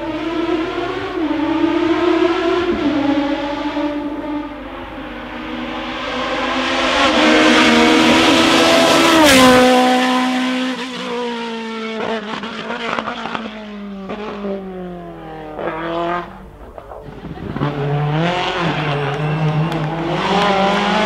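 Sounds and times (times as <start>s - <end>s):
race car passing at full throttle: 0.0s - 21.0s
exhaust pops and crackles: 15.6s - 20.8s.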